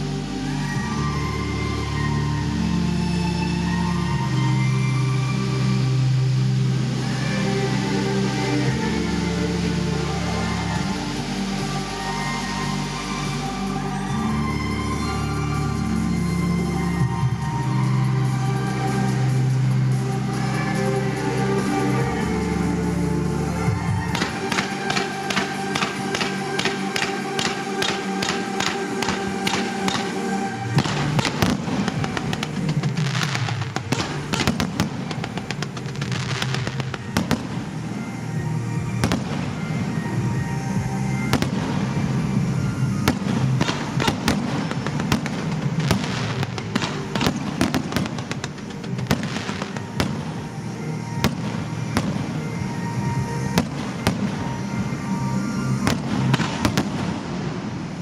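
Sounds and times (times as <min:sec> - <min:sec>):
music playing: 0:00.0 - 0:58.0
fireworks bangs and crackling: 0:24.0 - 0:38.1, 0:38.9 - 0:55.0, 0:55.6 - 0:58.0.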